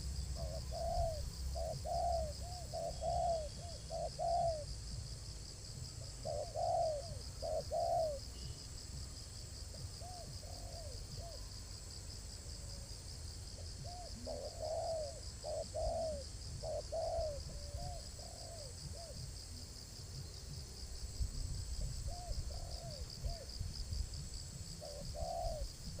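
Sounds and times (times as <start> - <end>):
dove cooing: 0.0 - 4.8, 5.9 - 8.4, 9.7 - 11.5, 13.6 - 19.3, 21.8 - 23.6, 24.7 - 26.0.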